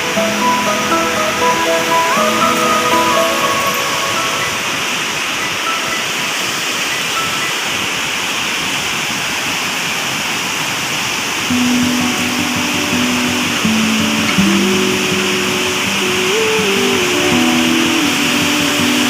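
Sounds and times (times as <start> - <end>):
background music: 0.0 - 6.1
waterfall rushing: 0.0 - 19.0.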